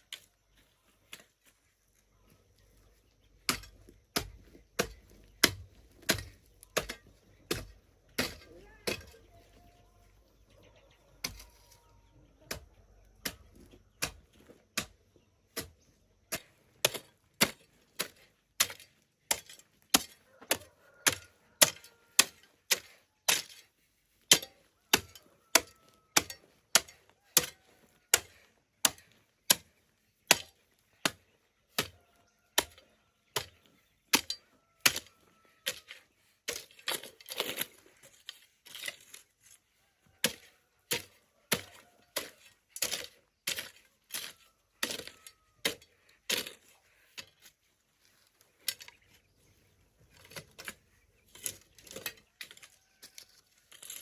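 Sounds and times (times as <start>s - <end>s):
hand tool striking earth: 0.0s - 10.2s, 11.1s - 54.0s.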